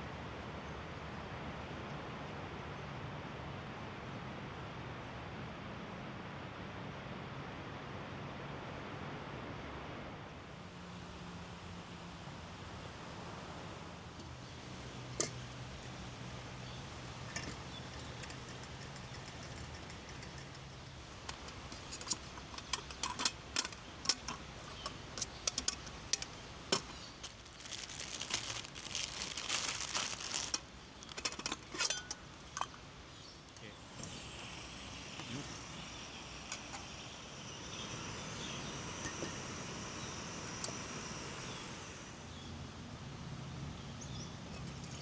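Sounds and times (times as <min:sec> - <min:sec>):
small hard objects clinking: 0:17.1 - 0:32.6
crinkling noise: 0:18.2 - 0:32.7.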